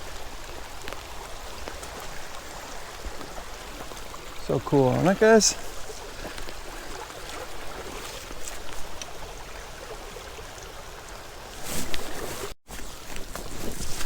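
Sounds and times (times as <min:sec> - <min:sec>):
creek water rushing: 0:00.0 - 0:13.4.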